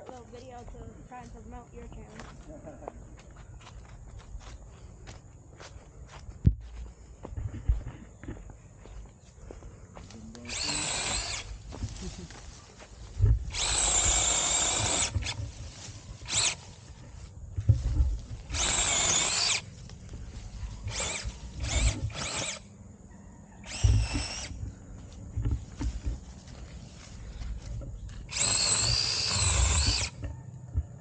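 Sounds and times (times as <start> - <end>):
mini chainsaw motor whining: 10.2 - 22.7, 23.6 - 24.8, 28.2 - 30.3.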